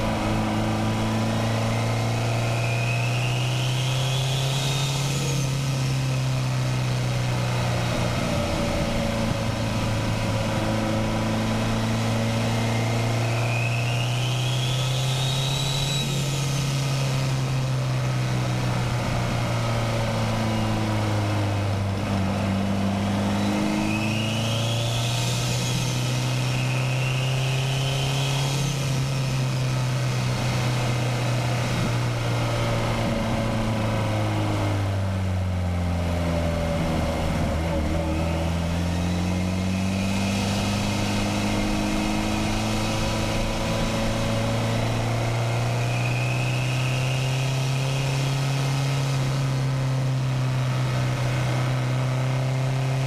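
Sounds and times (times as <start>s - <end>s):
car engine under way: 0.0s - 53.0s
turbo whine: 7.7s - 49.8s.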